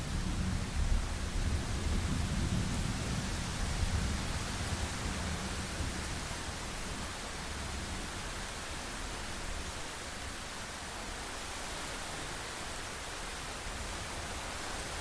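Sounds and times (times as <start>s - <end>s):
low rumble of thunder: 0.0s - 8.2s.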